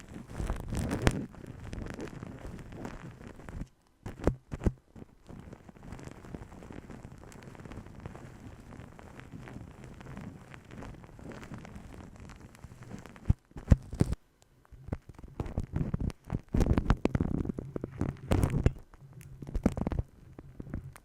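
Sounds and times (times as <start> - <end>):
rubbing and crackling friction: 0.0 - 21.0
sharp taps on microphone: 4.0 - 4.8.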